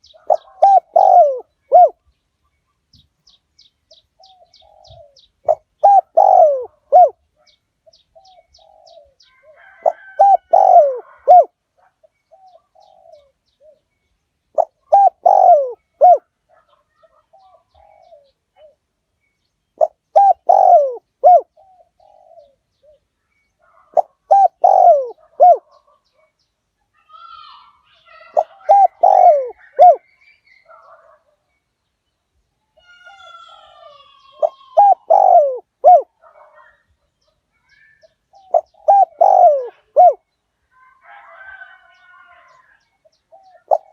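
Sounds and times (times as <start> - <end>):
dove cooing: 0.0 - 2.0, 4.2 - 13.9, 14.5 - 18.8, 19.8 - 26.3, 27.1 - 30.1, 32.9 - 36.8, 37.7 - 40.3, 41.1 - 43.9.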